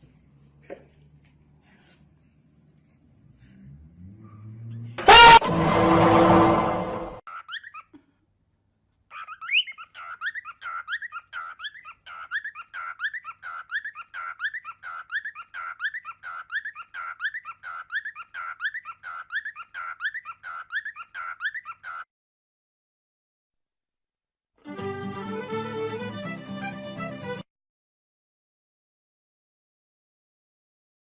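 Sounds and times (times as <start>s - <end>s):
bird squeaky chirping: 7.3s - 8.0s, 9.1s - 22.0s.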